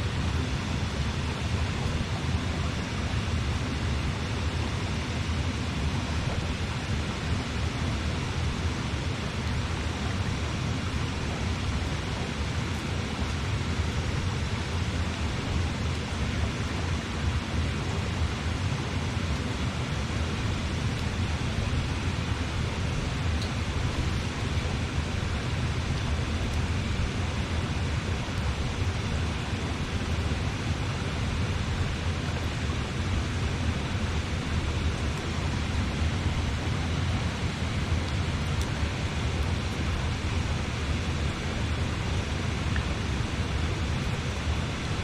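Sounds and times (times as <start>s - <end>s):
river rushing: 0.0s - 45.0s.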